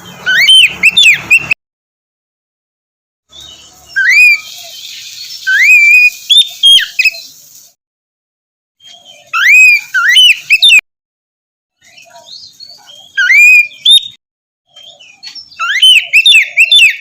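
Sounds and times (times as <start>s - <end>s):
bird singing whistled notes: 0.0s - 1.6s, 3.3s - 7.4s, 8.8s - 10.8s, 11.8s - 17.0s.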